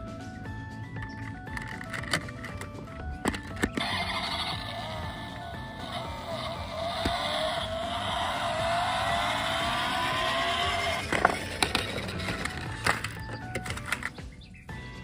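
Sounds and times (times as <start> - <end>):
sharp clicks: 1.0 - 14.5
race car engine revving: 3.8 - 13.2.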